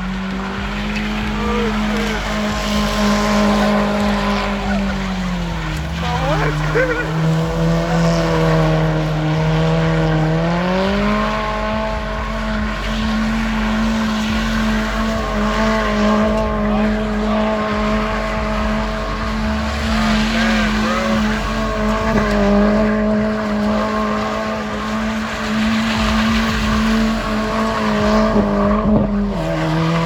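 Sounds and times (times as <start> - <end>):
tyres squealing: 0.0 - 8.7
car engine revving high: 0.0 - 30.0.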